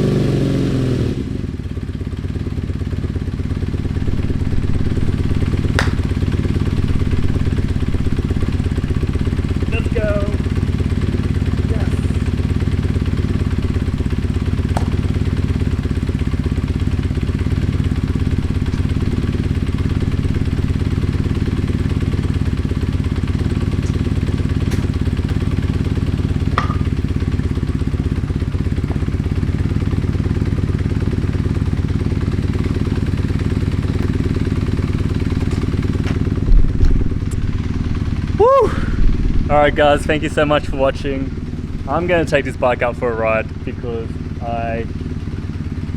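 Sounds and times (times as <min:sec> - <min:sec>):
motorcycle engine idling: 0:00.0 - 0:45.9
loud low thump: 0:05.4 - 0:07.6, 0:13.6 - 0:15.6, 0:23.7 - 0:27.2.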